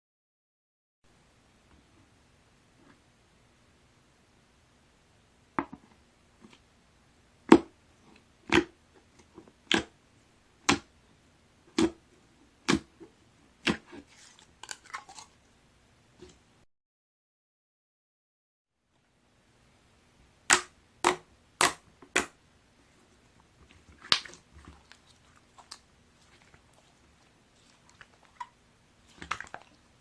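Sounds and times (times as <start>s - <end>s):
slime crackling: 23.7s - 30.0s.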